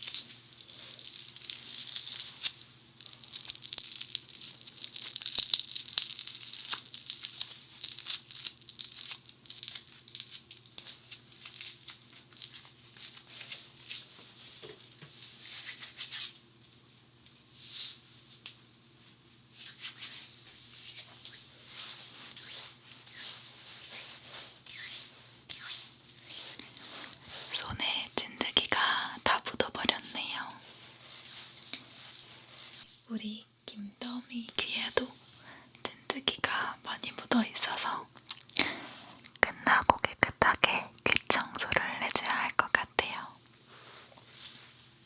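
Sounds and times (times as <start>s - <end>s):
foam crackling and squishing: 0.0s - 14.0s.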